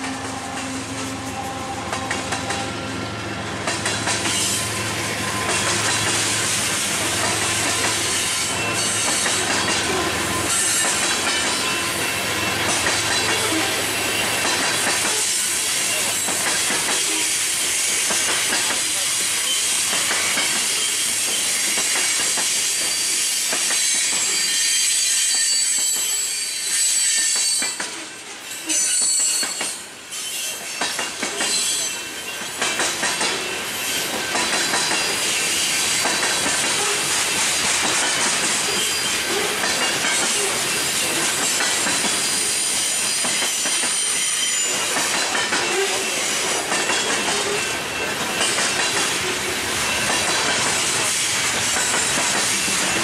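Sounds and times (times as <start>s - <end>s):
steel wheels rolling on rail: 0.0s - 53.0s
high wheel squeal: 4.1s - 18.3s, 19.0s - 27.8s, 28.5s - 32.6s, 38.1s - 48.6s.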